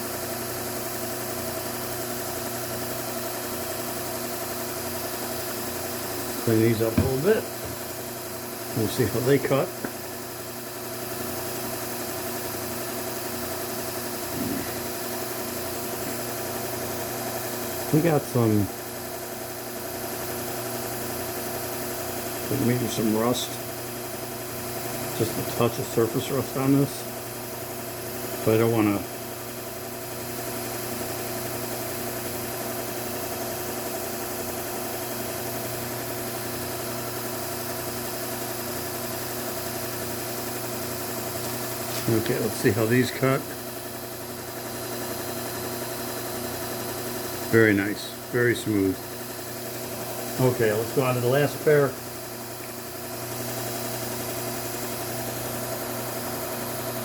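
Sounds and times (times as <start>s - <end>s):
electric motor humming: 1.7s - 27.8s, 33.6s - 57.0s.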